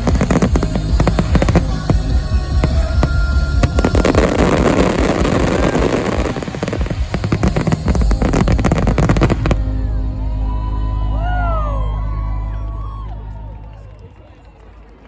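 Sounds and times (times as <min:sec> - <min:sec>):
fireworks bangs: 0:00.0 - 0:09.8
fireworks crackling: 0:00.0 - 0:10.3.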